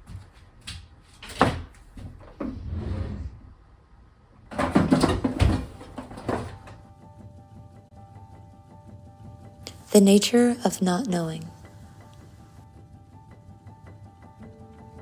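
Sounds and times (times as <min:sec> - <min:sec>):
knocks bumps and rustling: 0:04.4 - 0:06.9.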